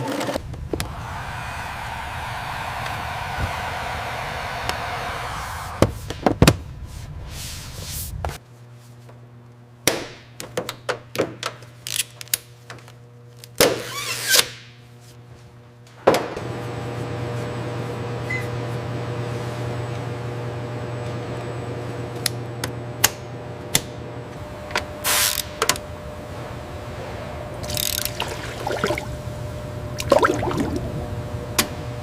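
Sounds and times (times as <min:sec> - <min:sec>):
steady low hum: 0:00.4 - 0:08.4, 0:25.8 - 0:32.0.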